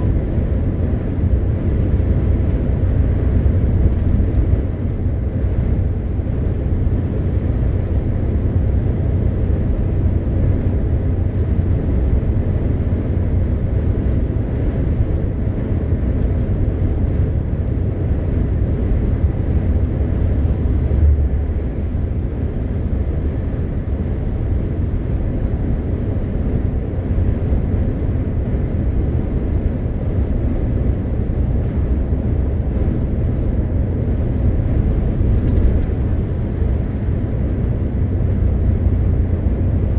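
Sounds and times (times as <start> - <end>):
truck diesel engine rumble: 0.0 - 39.9.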